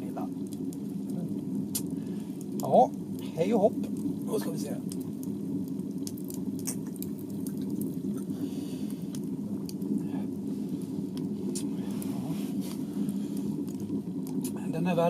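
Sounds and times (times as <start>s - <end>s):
fire crackling: 0.0s - 15.0s
stove low drone: 0.0s - 15.0s
wet sipping sounds: 1.0s - 2.6s, 5.9s - 14.6s.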